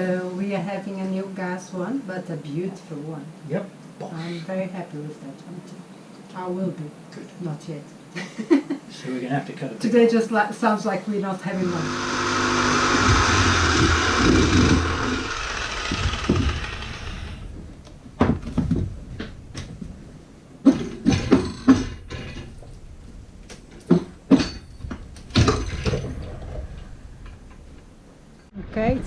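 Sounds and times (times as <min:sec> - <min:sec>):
electric power tool cutting: 0:11.6 - 0:17.5
sharp knocks and clatters: 0:12.8 - 0:19.9, 0:20.6 - 0:22.8, 0:23.4 - 0:26.4.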